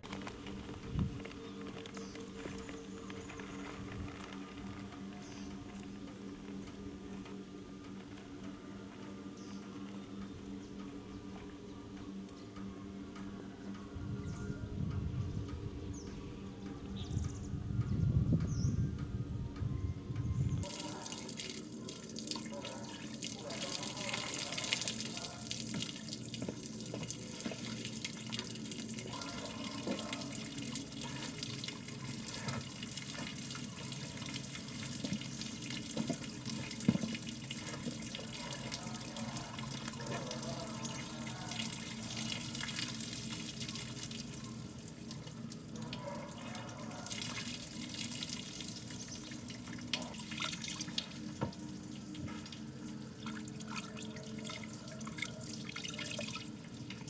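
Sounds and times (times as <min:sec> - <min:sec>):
water running: 0:20.6 - 0:57.0.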